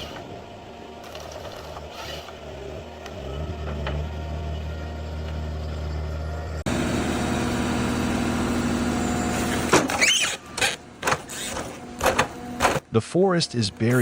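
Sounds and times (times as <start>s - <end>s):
machine humming: 0.0s - 9.9s
diesel engine running: 0.0s - 14.0s
high squeals: 9.4s - 11.6s.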